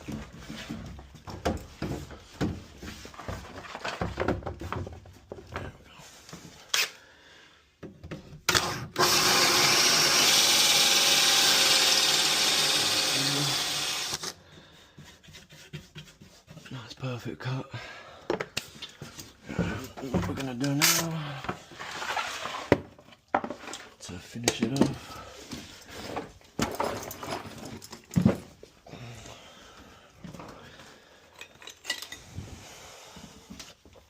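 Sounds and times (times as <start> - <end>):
handling knocks and rustles: 0.0 - 6.7, 18.3 - 28.8
power drill boring wood: 8.5 - 14.4.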